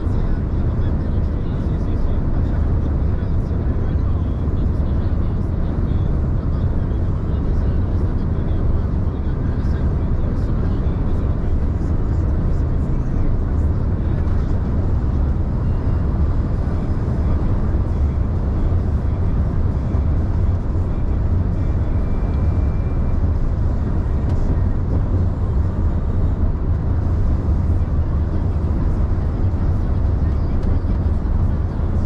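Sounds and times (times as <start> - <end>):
road noise: 0.0 - 32.0
truck engine rumbling: 0.0 - 32.0.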